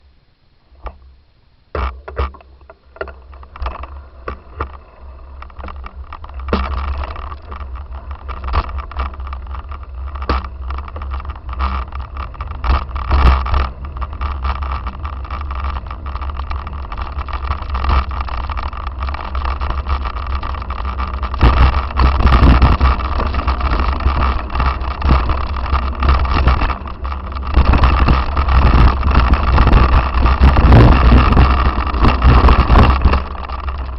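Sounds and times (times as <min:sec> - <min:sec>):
knocks and rattles: 0:01.7 - 0:33.9
wind rumbling on microphone: 0:01.8 - 0:33.9.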